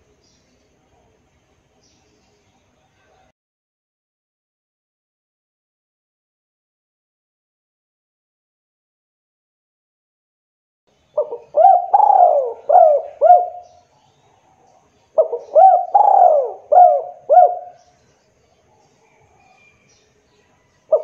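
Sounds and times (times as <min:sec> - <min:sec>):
dove cooing: 0:11.2 - 0:13.8, 0:15.2 - 0:17.9.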